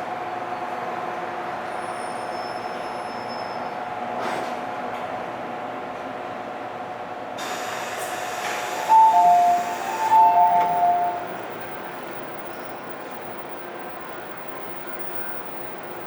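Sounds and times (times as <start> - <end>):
two-note electronic door chime: 8.9 - 11.3.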